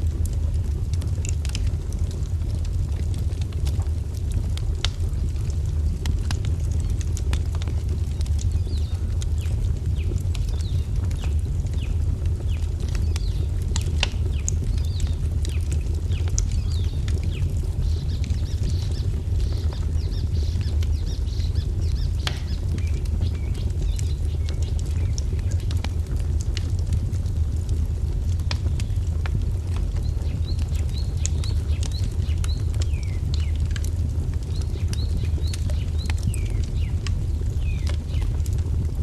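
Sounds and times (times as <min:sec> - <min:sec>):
fire crackling and popping: 0:00.0 - 0:39.0
small birds chirping: 0:06.8 - 0:25.8, 0:29.9 - 0:38.4.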